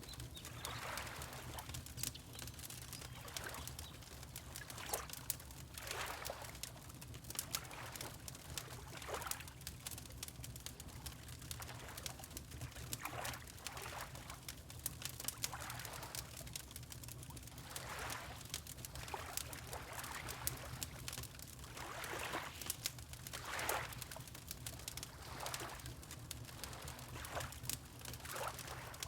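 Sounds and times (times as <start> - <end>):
wood fire crackling and popping: 0.0 - 29.0
water lapping: 0.1 - 2.1, 3.0 - 3.9, 5.8 - 6.5, 17.7 - 18.4, 21.6 - 24.2, 25.1 - 25.9, 26.5 - 27.6, 28.2 - 29.0.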